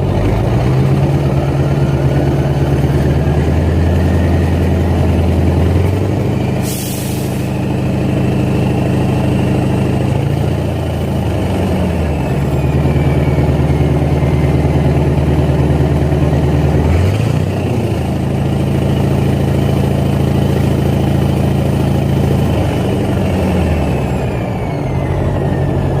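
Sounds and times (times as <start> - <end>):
diesel truck engine revving: 0.0 - 26.0
air hiss: 6.6 - 7.5.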